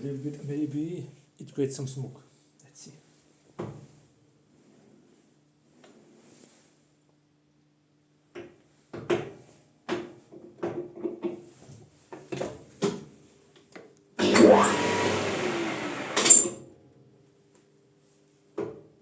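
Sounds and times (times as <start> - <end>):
lathe spinning with whine: 14.2 - 16.6.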